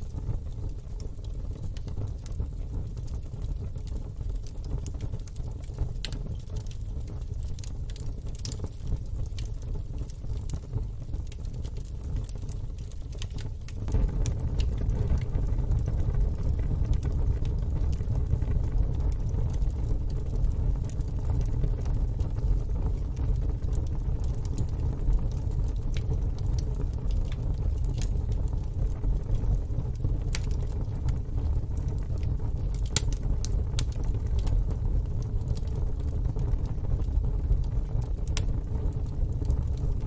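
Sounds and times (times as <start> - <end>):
wood fire crackling: 0.0 - 40.0
low rumble: 13.9 - 21.8
sharp pops and snaps: 32.7 - 34.5.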